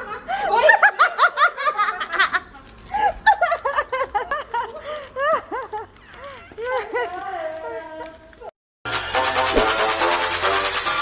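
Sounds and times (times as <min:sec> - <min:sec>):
high-pitched giggles: 0:03.0 - 0:08.3.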